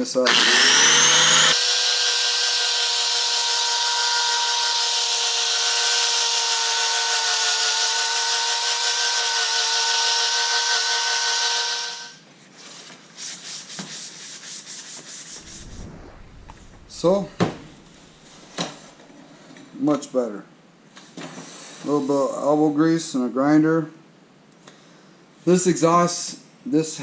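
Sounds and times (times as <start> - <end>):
angle grinder on metal: 0.0 - 12.2.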